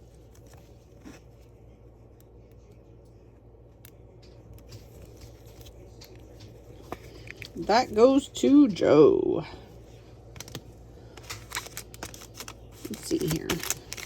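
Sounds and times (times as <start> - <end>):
steady low hum: 0.0 - 14.0
trading cards rustling: 10.2 - 14.0.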